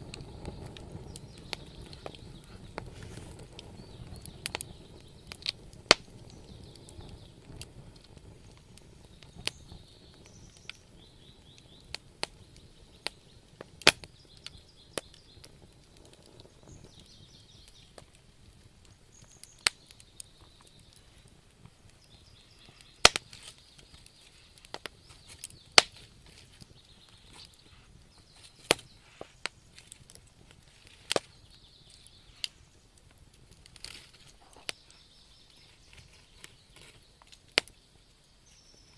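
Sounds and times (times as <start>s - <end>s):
low rumble of flames: 0.0s - 38.9s
wood fire crackling and popping: 0.0s - 38.9s.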